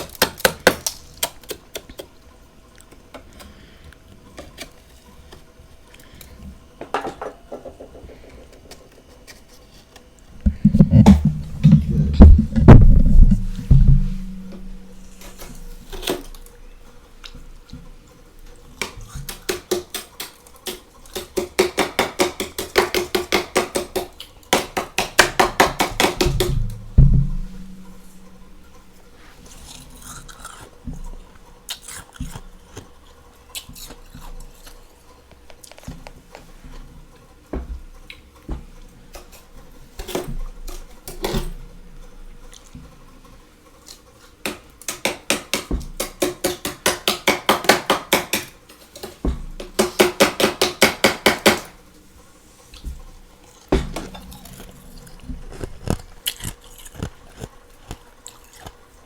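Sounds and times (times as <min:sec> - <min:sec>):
faint steady hum: 0:01.5 - 0:19.3, 0:24.0 - 0:43.9
freezer frost crunching: 0:52.8 - 0:59.0.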